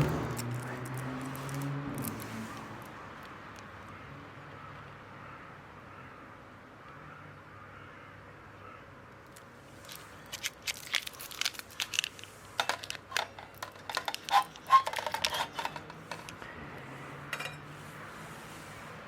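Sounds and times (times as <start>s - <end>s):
small metal parts clicking: 0.3s - 3.7s, 9.3s - 16.5s.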